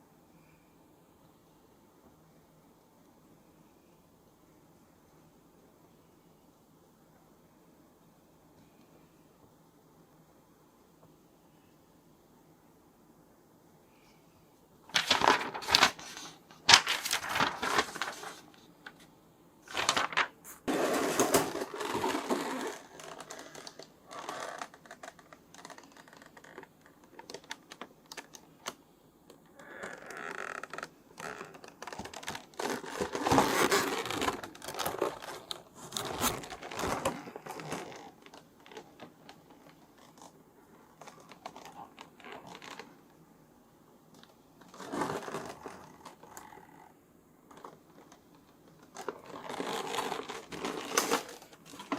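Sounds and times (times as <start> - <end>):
packaging rustling and scraping: 14.9 - 28.4, 29.6 - 40.3, 44.2 - 46.7, 47.5 - 51.9.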